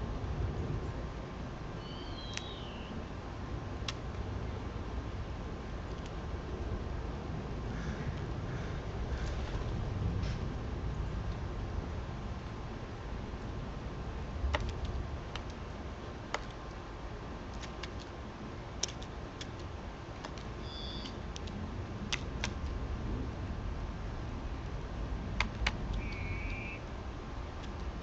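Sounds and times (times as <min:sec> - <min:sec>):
low outdoor rumble: 0:00.0 - 0:28.0
short high bird call: 0:01.8 - 0:02.9, 0:20.6 - 0:21.2, 0:26.0 - 0:26.8
warbling bird call: 0:01.8 - 0:03.0, 0:20.6 - 0:21.2, 0:26.0 - 0:26.8
sharp clicks and taps: 0:14.5 - 0:15.6, 0:16.3 - 0:16.7, 0:18.8 - 0:22.7, 0:25.4 - 0:26.2.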